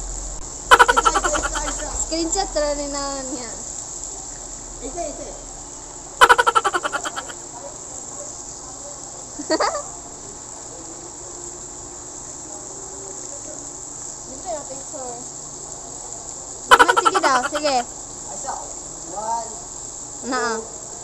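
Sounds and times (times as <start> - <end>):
insects buzzing: 0.0 - 8.8, 9.4 - 20.6
short sweeping call: 0.7 - 2.0, 6.2 - 7.4, 16.7 - 17.8
rapid rattling call: 0.7 - 3.4, 6.2 - 7.4, 16.7 - 17.9.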